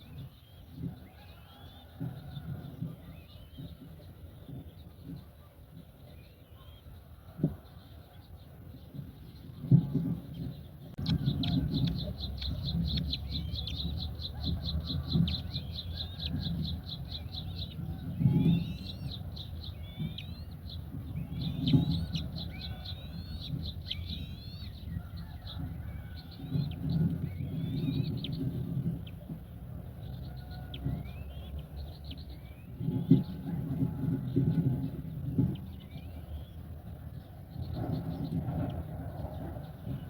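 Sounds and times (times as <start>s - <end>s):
low muffled rumbles: 0.0s - 40.0s
small birds trilling and chirping: 0.0s - 40.0s.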